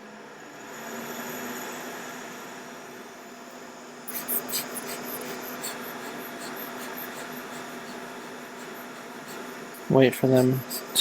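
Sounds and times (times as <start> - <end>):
steady hum: 2.4 - 11.0
hand tools clicking and scraping: 4.1 - 11.0.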